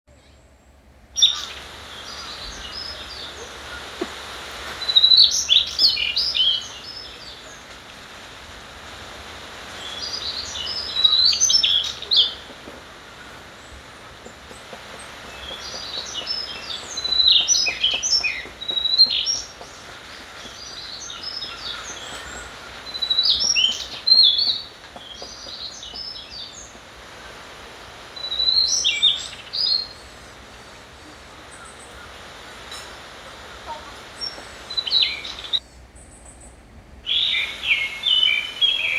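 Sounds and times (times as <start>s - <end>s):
songbird twittering: 0.1s - 38.9s
stream flowing: 1.2s - 35.6s.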